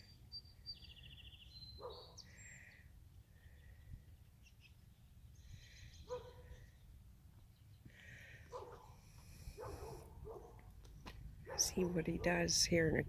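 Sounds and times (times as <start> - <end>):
low bird calls: 0.0 - 8.9
faint birdsong chirps and trill: 0.0 - 13.0
low steady background rumble: 0.0 - 13.0.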